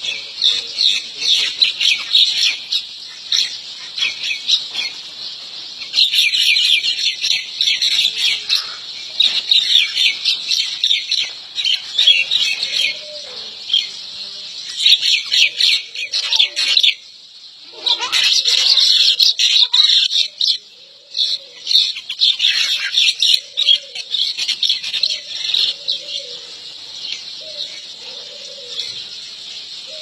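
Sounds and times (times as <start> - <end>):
small birds chirping: 0.0 - 30.0
lower bird calls: 17.6 - 30.0.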